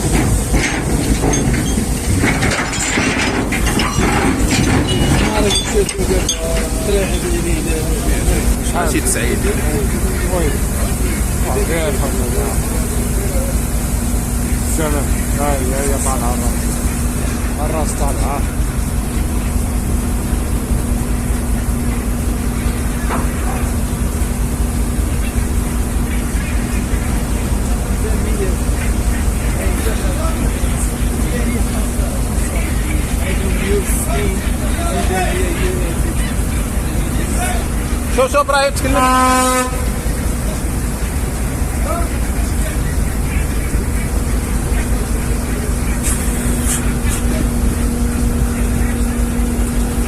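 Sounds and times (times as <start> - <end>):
knocking and crunching clatter: 0.0 - 7.4
engine rumble: 0.0 - 50.0.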